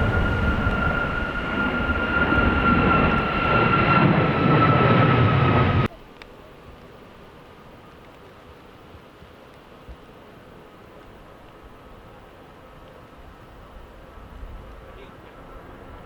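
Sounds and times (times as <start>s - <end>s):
jet engines rumbling and whining: 0.0s - 5.9s
wind noise: 0.0s - 5.9s.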